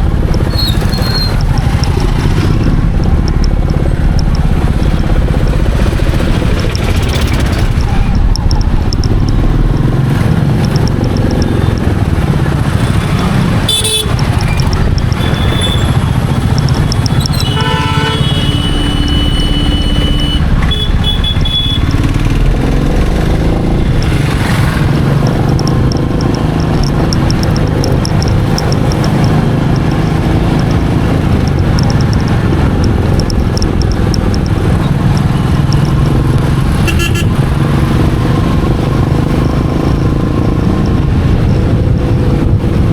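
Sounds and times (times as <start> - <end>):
motorcycle engine running: 0.0 - 42.9
vehicle horn honking: 13.7 - 14.4, 17.3 - 22.0, 36.8 - 37.4.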